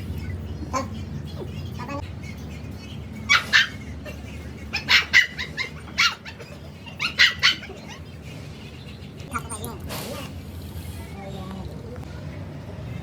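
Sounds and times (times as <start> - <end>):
dog barking: 4.8 - 6.4, 7.0 - 8.0.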